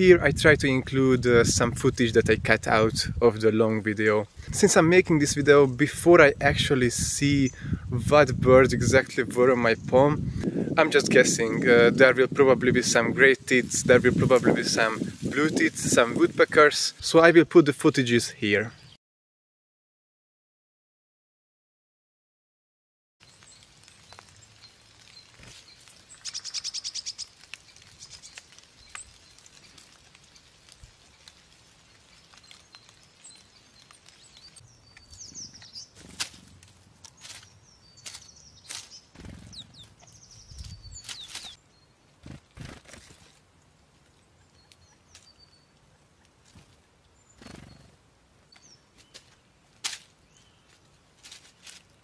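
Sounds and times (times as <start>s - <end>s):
rustling in dry leaves: 12.6s - 17.2s, 23.2s - 52.0s
small birds trilling and chirping: 18.5s - 19.0s, 23.2s - 52.0s.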